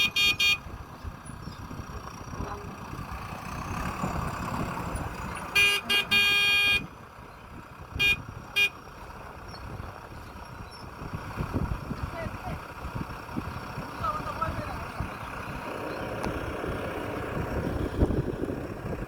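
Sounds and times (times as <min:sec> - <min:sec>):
vehicle horn honking: 0:00.0 - 0:00.7, 0:05.5 - 0:06.9, 0:08.0 - 0:08.8
low engine rumble: 0:00.0 - 0:19.0.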